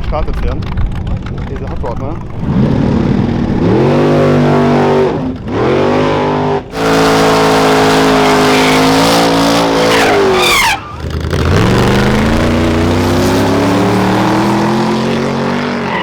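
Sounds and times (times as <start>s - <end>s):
engine revving hard: 2.4s - 16.0s
tyres squealing: 6.7s - 16.0s.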